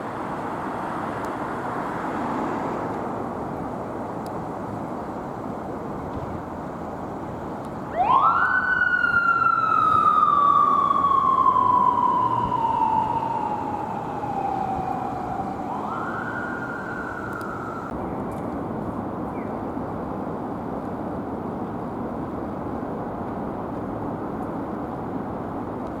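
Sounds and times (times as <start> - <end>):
traffic noise: 0.0 - 26.0
police motorcycle siren: 7.9 - 17.9.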